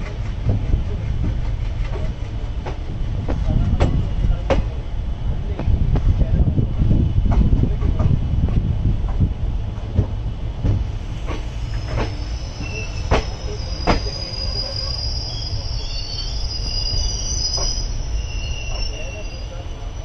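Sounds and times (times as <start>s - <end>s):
train rolling on rails: 0.0s - 20.0s
high-pitched wheel squeal: 11.6s - 20.0s.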